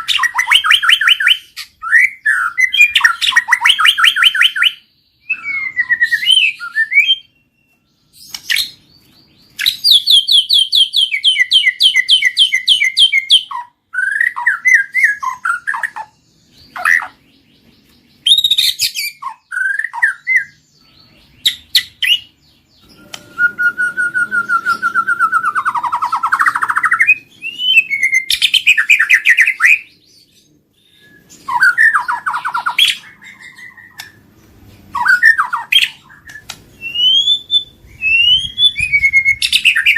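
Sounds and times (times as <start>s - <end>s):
songbird singing varied song: 0.0s - 39.9s.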